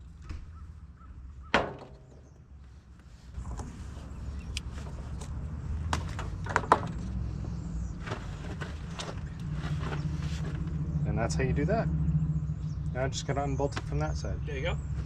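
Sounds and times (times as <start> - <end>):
low steady rumble: 0.0 - 15.0
metal clang: 1.5 - 2.4
sharp metallic knocks: 1.5 - 2.4.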